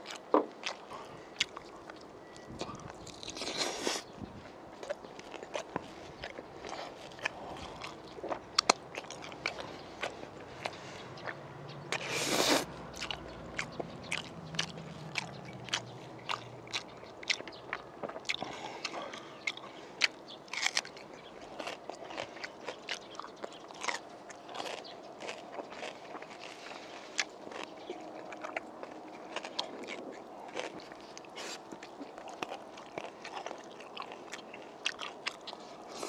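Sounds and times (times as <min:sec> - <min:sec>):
wet biting and chewing: 0:00.0 - 0:04.1, 0:04.8 - 0:36.0.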